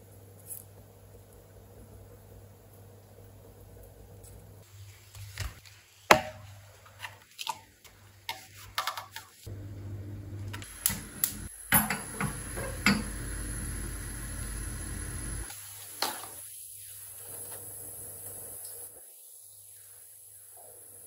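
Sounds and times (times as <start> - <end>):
steady low hum: 9.5 - 15.5.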